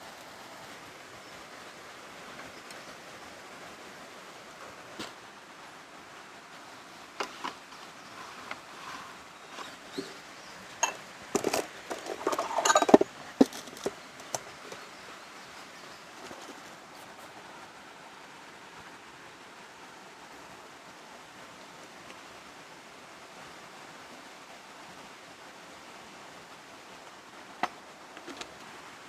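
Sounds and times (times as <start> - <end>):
rain hiss: 0.0 - 29.0
hard objects clinking: 10.8 - 14.8.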